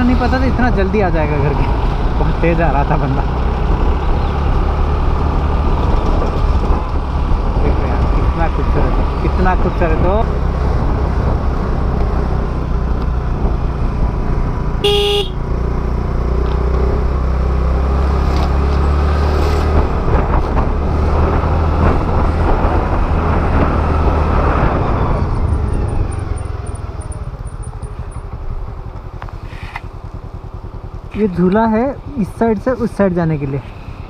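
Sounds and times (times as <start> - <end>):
scooter engine and wind rumble: 0.0 - 34.0
vehicle horn toot: 14.8 - 15.4.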